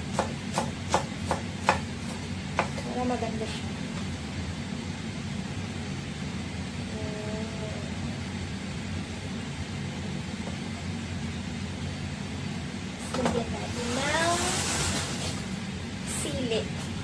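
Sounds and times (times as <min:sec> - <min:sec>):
low mechanical rumble: 0:00.0 - 0:17.0
hiss: 0:13.7 - 0:15.5.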